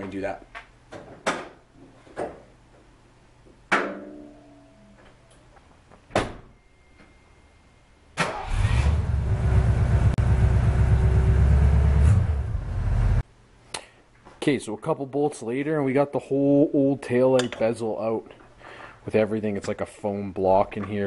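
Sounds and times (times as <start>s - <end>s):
car engine starting and running: 8.2s - 13.2s.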